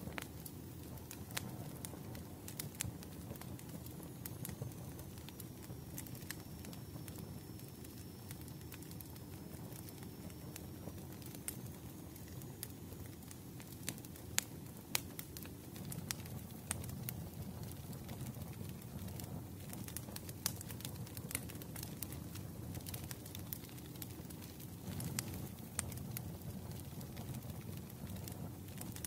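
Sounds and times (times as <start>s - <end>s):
log fire crackling: 0.0s - 29.0s.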